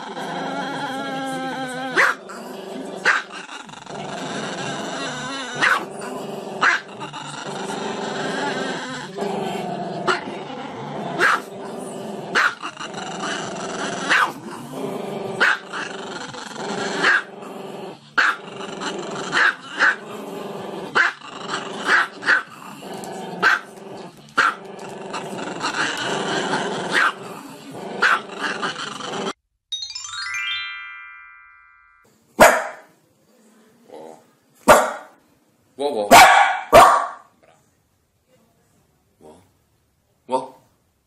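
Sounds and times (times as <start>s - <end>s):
small dog growling: 0.0s - 29.4s
small dog barking sharply: 32.4s - 32.8s, 34.7s - 35.1s, 36.1s - 37.2s.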